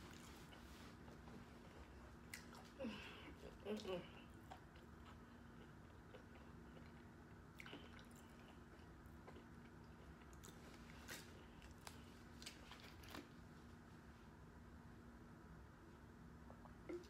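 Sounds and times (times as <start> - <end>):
chewing food: 0.0 - 13.4
low steady hum: 0.0 - 17.0.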